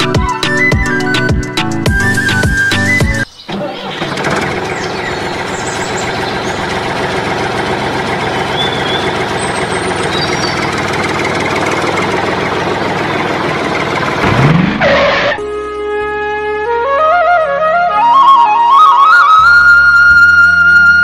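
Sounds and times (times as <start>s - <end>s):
tractor engine chugging: 1.9s - 15.4s.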